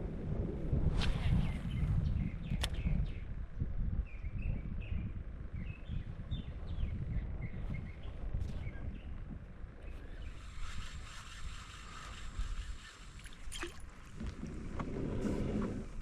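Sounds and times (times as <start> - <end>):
wind buffeting microphone: 0.0 - 16.0
birds chirping: 4.0 - 13.8.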